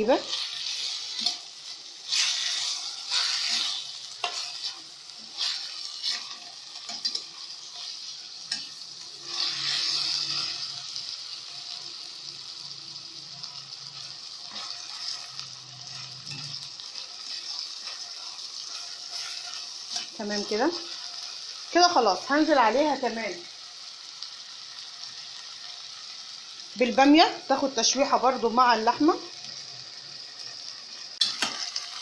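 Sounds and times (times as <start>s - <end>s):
meat sizzling in butter: 0.0s - 32.0s
stirring strokes: 2.1s - 8.0s.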